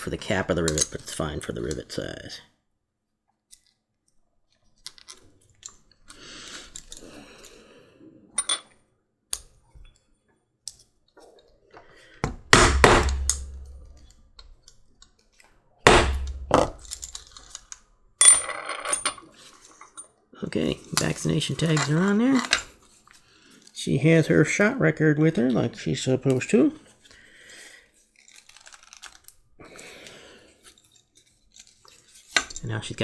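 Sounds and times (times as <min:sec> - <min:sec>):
hammer striking rivet setter: 0:12.5 - 0:14.0, 0:15.9 - 0:17.2
metal tags clinking: 0:15.9 - 0:17.6.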